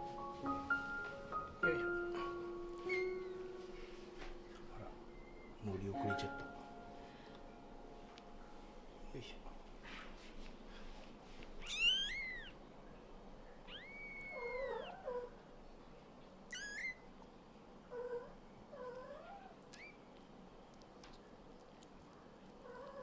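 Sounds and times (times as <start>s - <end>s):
kittens mewing: 11.6s - 12.6s, 13.7s - 15.3s.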